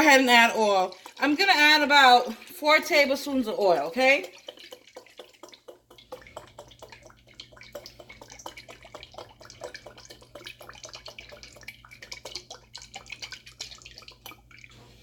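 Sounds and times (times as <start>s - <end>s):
oil crackling and popping: 4.1s - 14.8s.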